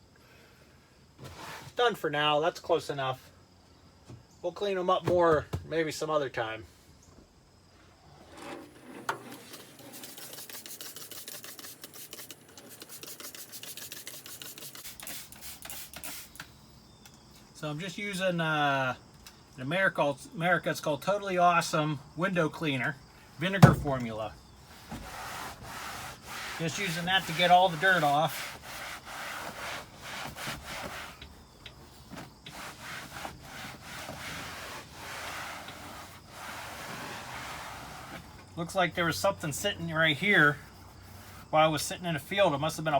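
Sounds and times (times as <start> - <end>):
cloth scrubbing glass: 8.4 - 15.0, 23.5 - 31.2, 32.5 - 38.2.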